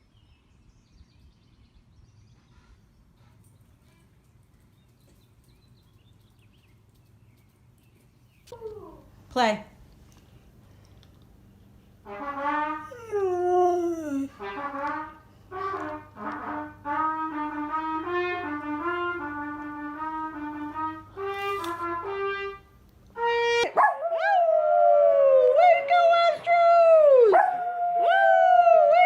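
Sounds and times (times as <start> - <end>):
brass instrument playing slow tune: 12.0 - 23.7
dog howling: 12.7 - 14.5, 23.8 - 25.8, 27.1 - 29.0.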